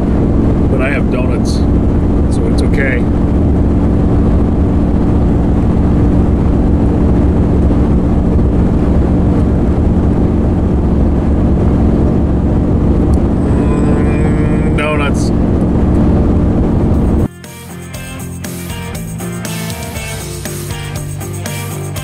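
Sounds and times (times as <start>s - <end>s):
constant low hum: 0.0s - 17.3s
van engine droning: 0.0s - 17.3s.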